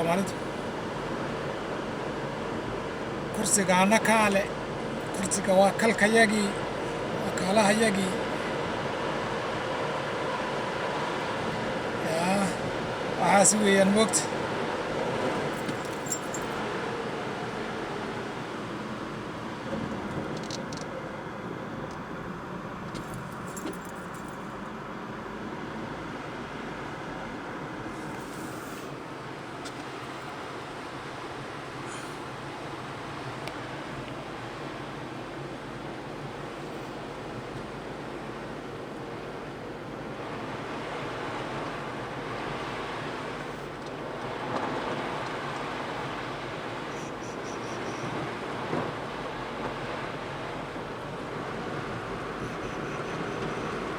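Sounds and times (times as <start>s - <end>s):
car road and engine noise: 0.0s - 53.9s
keys jingling: 15.6s - 16.6s, 23.0s - 24.4s.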